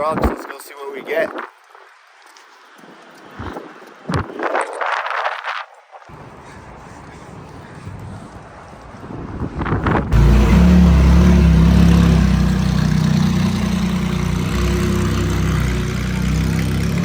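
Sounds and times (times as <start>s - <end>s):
pickup truck engine running: 10.1s - 17.0s.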